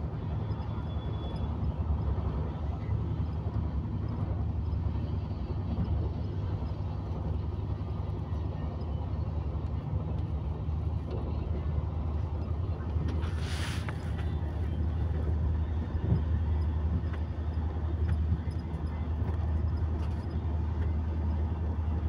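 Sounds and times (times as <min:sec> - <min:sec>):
train running rumble: 0:00.0 - 0:22.0
short rushing hiss: 0:13.2 - 0:14.2.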